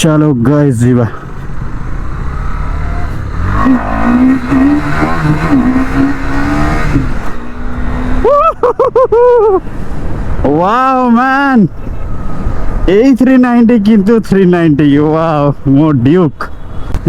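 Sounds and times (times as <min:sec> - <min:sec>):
motorcycle engine revving: 0:01.2 - 0:08.4.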